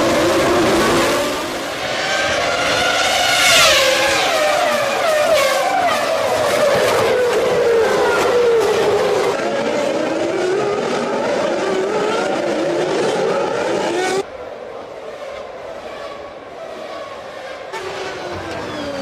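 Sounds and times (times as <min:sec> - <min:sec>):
racing car engines at high revs: 0:00.0 - 0:14.3.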